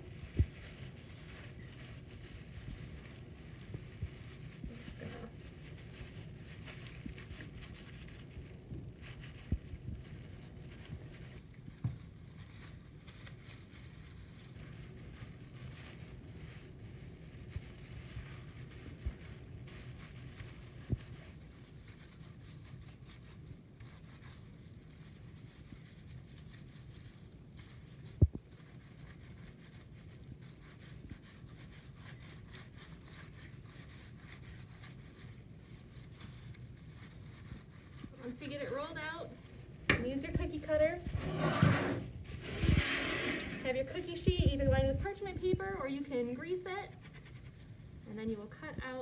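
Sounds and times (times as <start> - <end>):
rolling pin rubbing on dough: 0.0 - 49.0
rolling pin rolling dough: 37.8 - 46.7.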